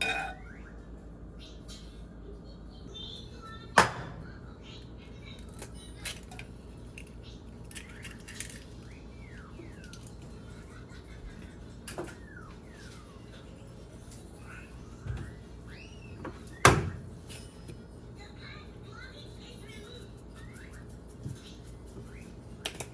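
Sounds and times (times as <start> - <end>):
dishes clicking and clinking: 0.0 - 0.4.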